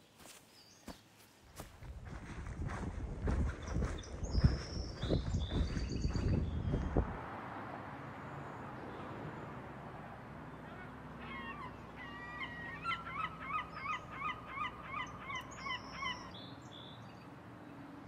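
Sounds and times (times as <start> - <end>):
bird calling: 10.5 - 17.2.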